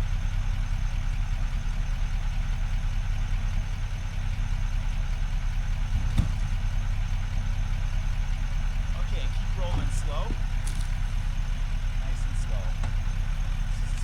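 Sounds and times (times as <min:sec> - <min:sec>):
truck engine running at low revs: 0:00.0 - 0:14.0
truck rolling over logs: 0:05.6 - 0:11.1.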